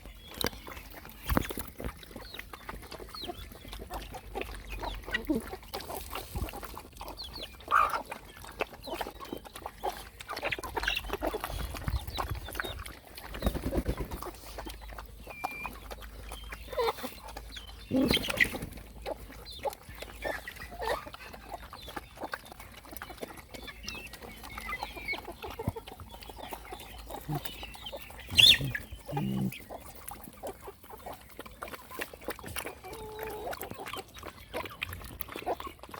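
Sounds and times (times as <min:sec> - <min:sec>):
high-pitched puppy calls: 0:27.2 - 0:29.6.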